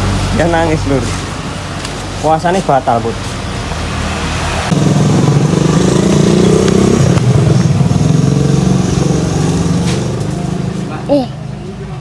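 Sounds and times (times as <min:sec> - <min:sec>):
motorcycle engine running: 0:04.7 - 0:11.0.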